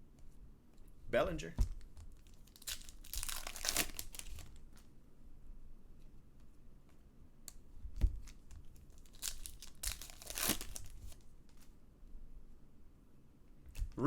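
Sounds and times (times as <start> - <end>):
foil wrapper crinkling and tearing: 2.1 - 4.9, 8.2 - 11.7.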